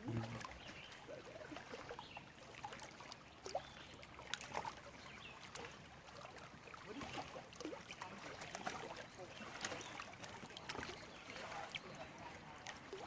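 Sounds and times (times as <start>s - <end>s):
small water splashes: 0.0s - 13.0s
water trickling: 0.0s - 13.0s.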